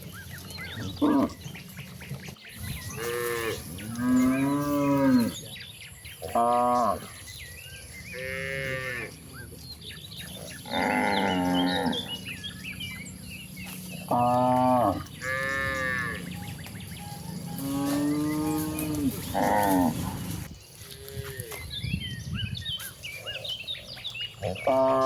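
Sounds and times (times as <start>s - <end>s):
cattle mooing: 2.9s - 5.4s, 10.3s - 12.5s, 13.9s - 16.5s, 17.3s - 20.5s, 24.4s - 25.0s.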